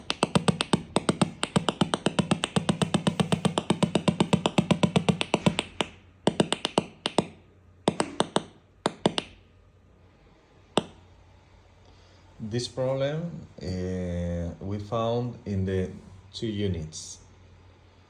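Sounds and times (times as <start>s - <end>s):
speaker clicking rapidly: 0.0s - 9.4s, 10.8s - 11.0s.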